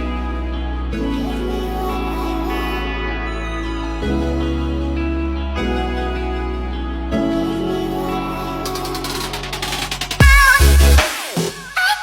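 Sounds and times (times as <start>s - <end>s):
slow synth chords: 0.0s - 8.7s.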